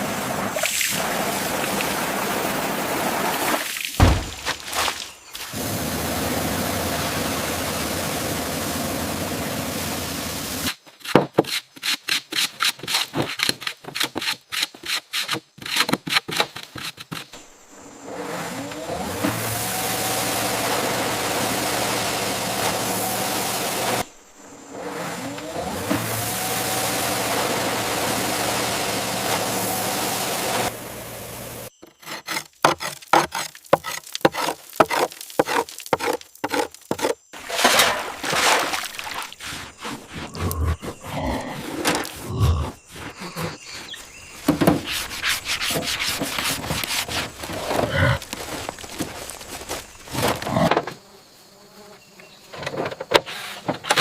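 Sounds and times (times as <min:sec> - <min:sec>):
scraping and knocking strokes: 0:11.0 - 0:17.4, 0:31.8 - 0:50.5
power tool whining: 0:24.7 - 0:31.7.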